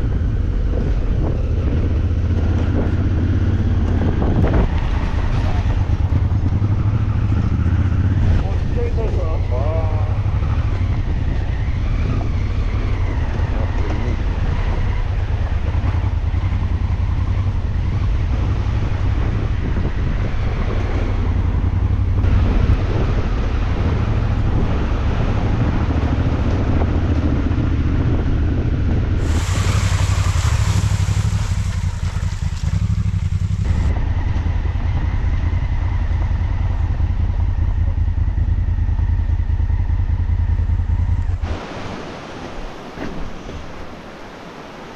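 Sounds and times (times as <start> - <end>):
wind rumble on microphone: 0.0 - 44.9
motorcycle engine running: 12.8 - 41.4.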